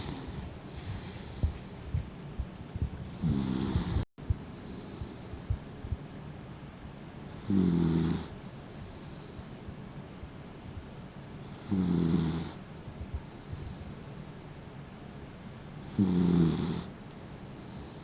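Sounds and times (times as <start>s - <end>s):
dog snoring: 0.0s - 1.6s, 3.1s - 5.2s, 7.3s - 8.3s, 11.4s - 12.6s, 15.8s - 16.9s.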